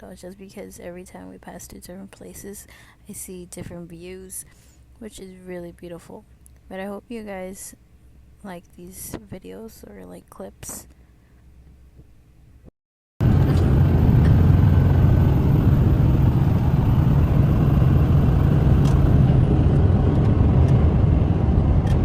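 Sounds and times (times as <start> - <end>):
truck road and engine rumble: 13.2 - 22.0.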